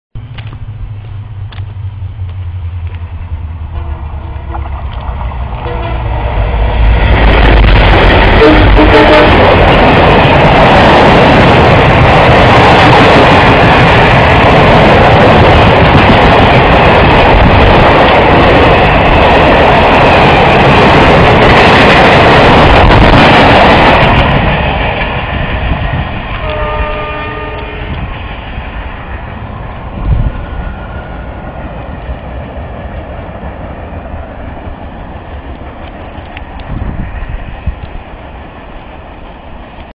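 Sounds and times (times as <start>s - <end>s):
freight train wagons rumbling: 0.2s - 39.9s
train horn: 5.6s - 6.6s, 8.0s - 9.7s, 26.4s - 28.1s.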